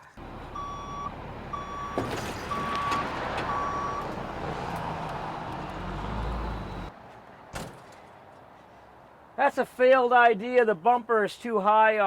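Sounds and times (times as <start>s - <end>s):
truck engine rumble: 0.0s - 6.9s
truck reversing beeper: 0.2s - 4.4s, 5.5s - 6.9s.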